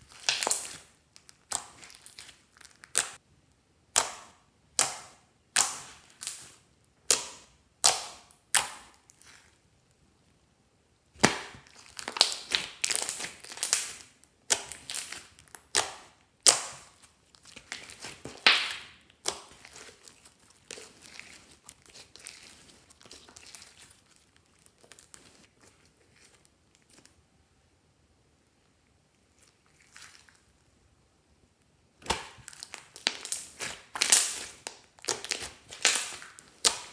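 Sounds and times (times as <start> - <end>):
slime being squished by hand: 0.0 - 3.2, 3.9 - 9.6, 11.2 - 27.1, 32.0 - 36.9
slime crackling and popping: 0.0 - 3.2, 3.9 - 9.4, 11.2 - 25.5, 32.0 - 36.9.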